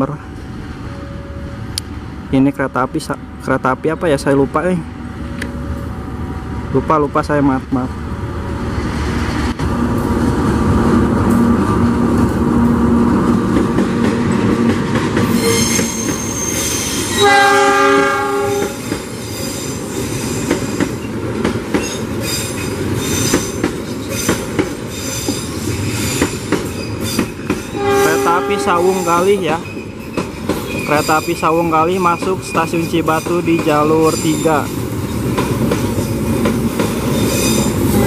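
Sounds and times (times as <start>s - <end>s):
train running noise: 0.0s - 38.0s
high wheel squeal: 15.3s - 17.4s, 24.9s - 34.8s, 37.1s - 38.0s
train horn blast: 17.2s - 18.8s, 27.8s - 29.0s.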